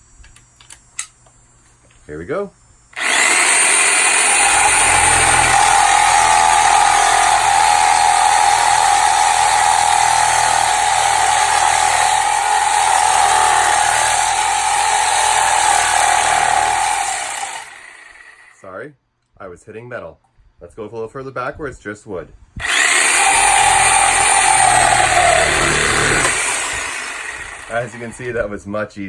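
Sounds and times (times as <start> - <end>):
reciprocating saw cutting wood: 3.0 - 18.6, 22.6 - 28.4.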